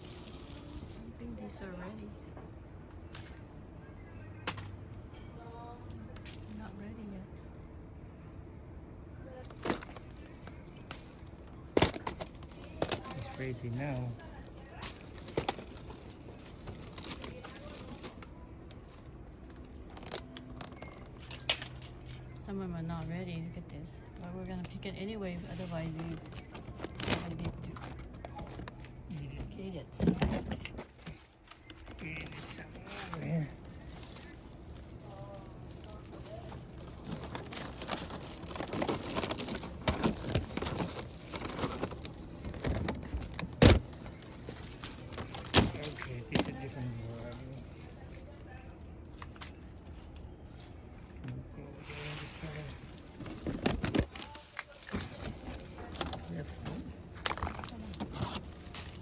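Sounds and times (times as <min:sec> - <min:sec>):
leaves rustling: 0:00.0 - 0:01.3, 0:30.9 - 0:59.0.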